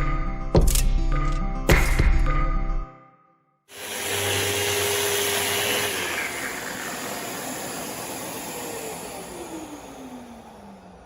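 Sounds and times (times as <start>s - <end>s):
dust extractor hissing: 3.7s - 10.9s
motor winding down whine: 3.7s - 11.0s
sander running: 3.7s - 11.0s.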